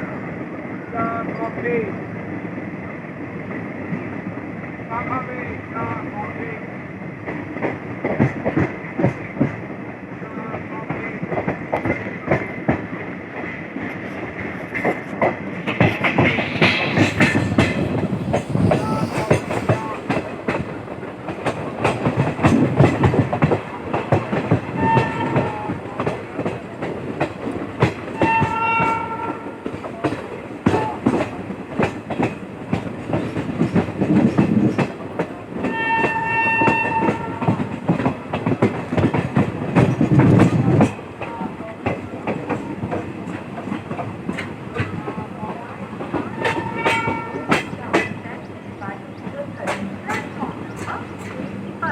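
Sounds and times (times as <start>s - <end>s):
train rumble: 0.0s - 51.9s
train wheels clicking on rails: 6.9s - 51.9s
train horn: 24.7s - 25.8s, 28.2s - 29.7s, 35.6s - 37.7s, 46.3s - 47.8s.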